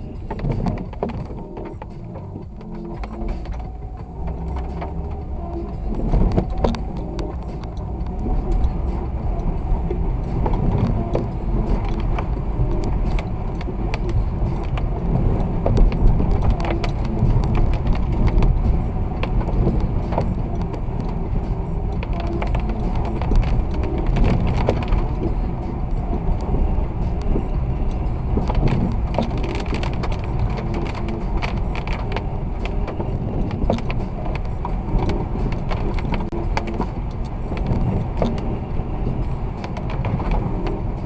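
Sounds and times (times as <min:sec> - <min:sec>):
car road and engine rumble: 0:00.0 - 0:41.0
small clicks and knocks: 0:27.1 - 0:40.8.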